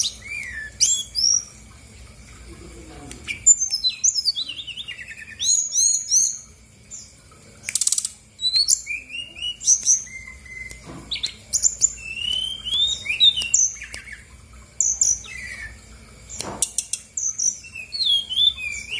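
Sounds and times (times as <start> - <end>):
bird singing whistles: 0.0 - 1.5, 7.7 - 14.2, 14.8 - 15.8, 16.4 - 18.9
buzzy bird trill: 3.2 - 18.9.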